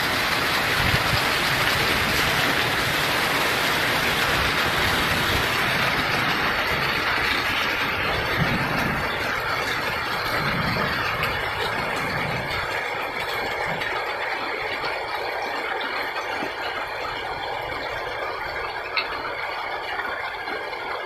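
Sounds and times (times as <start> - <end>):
heavy rain hissing: 0.0 - 14.2.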